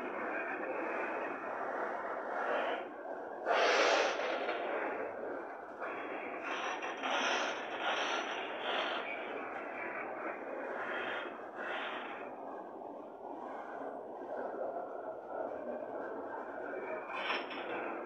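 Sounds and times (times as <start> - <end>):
train wheels rushing on rail: 6.4 - 9.0.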